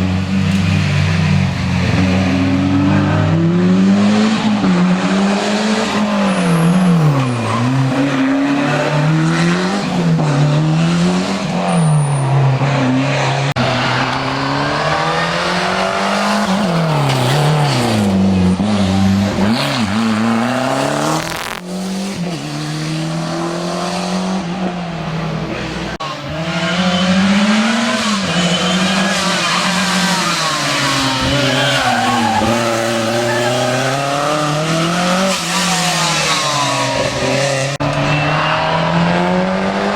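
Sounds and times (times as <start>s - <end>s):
rally car engine revving: 0.0s - 39.9s
tyres squealing: 26.0s - 39.0s.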